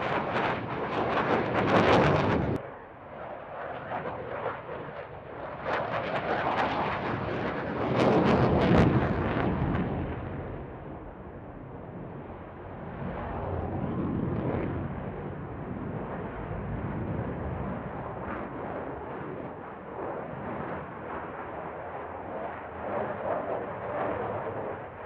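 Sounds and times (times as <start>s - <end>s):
crackling jet noise: 0.0s - 25.0s.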